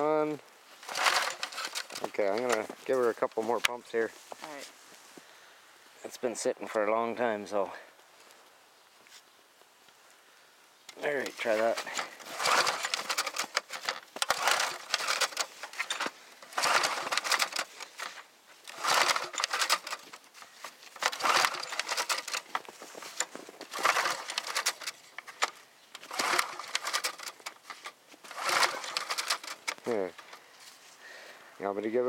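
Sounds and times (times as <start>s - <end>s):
mower engine cranking: 0.0s - 3.8s, 10.9s - 30.8s
recoil starter pulls: 0.1s - 3.8s, 10.9s - 30.4s.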